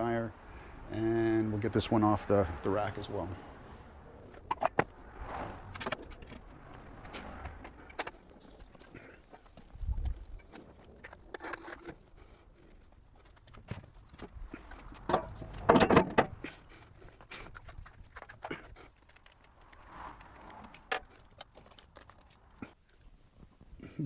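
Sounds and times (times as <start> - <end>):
clattering and rustling: 4.2 - 23.8
knocks and clunks of objects: 13.4 - 22.5.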